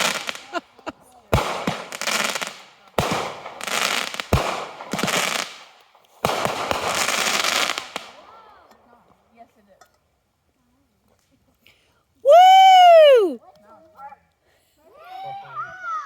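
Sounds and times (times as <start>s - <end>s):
firework bangs: 0.0s - 8.3s
firework crackling hiss: 0.0s - 8.4s.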